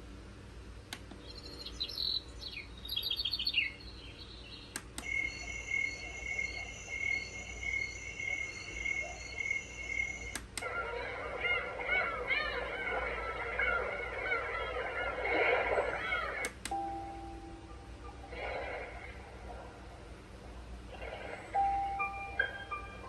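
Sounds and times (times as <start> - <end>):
bird-like chirps: 1.2 - 10.3
sound machine clicks: 4.7 - 10.7, 16.4 - 16.8
steady electronic tone: 5.0 - 10.4
pulsing cricket-like chirp: 5.0 - 18.6.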